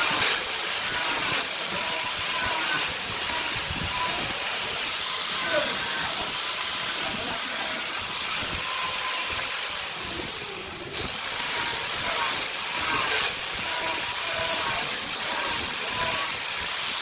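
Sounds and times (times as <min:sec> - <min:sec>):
lathe tool cutting wood: 0:00.0 - 0:17.0.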